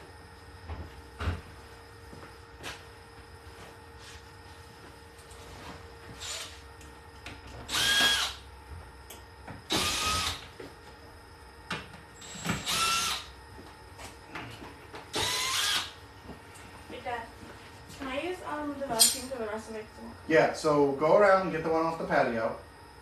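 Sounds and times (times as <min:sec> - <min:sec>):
power drill whining: 0:06.2 - 0:06.6, 0:07.7 - 0:08.4, 0:09.7 - 0:10.4, 0:12.2 - 0:13.3, 0:15.1 - 0:16.0.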